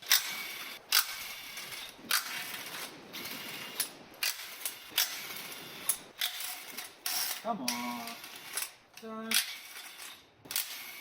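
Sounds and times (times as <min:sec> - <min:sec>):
ratchet wrench clicking: 0:03.7 - 0:11.0.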